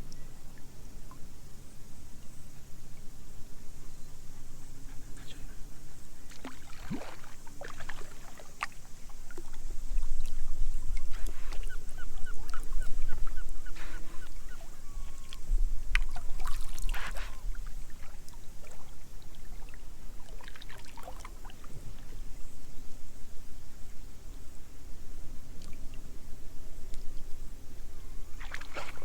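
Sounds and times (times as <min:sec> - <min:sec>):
water splashing around a kayak: 0:06.3 - 0:22.2, 0:28.4 - 0:29.0
bird calling: 0:10.8 - 0:15.5.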